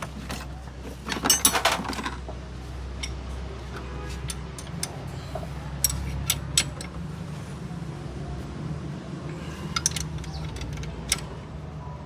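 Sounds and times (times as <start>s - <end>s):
metal hand tools clinking: 9.7s - 11.3s.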